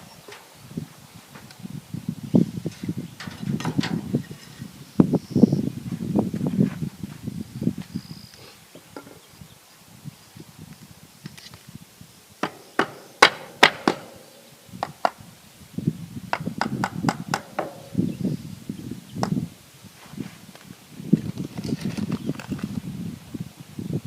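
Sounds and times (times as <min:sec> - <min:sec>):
rough scraping and rustling: 0:00.0 - 0:09.4, 0:19.8 - 0:23.5
hammer knocking on wood: 0:12.4 - 0:14.1.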